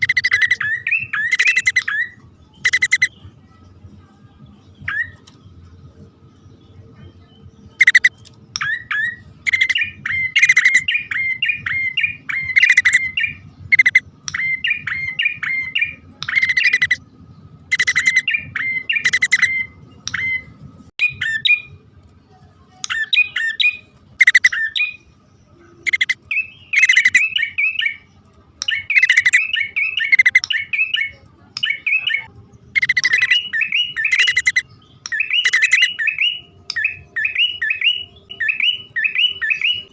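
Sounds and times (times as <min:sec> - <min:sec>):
bird chattering chirps: 0:00.0 - 0:03.2, 0:07.7 - 0:17.0, 0:17.7 - 0:20.4, 0:22.8 - 0:25.1, 0:25.8 - 0:39.9.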